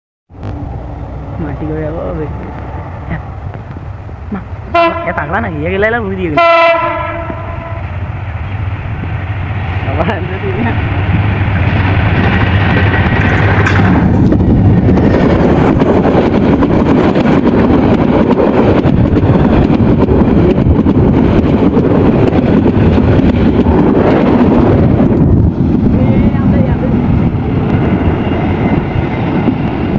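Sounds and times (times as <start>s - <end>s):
train passing rumble: 0.3s - 29.9s
wheels clattering over rails: 10.6s - 25.3s.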